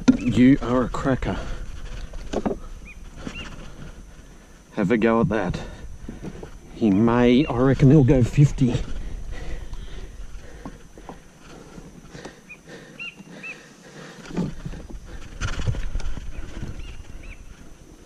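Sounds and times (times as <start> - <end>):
knocks and thumps in kayak: 2.2 - 3.3.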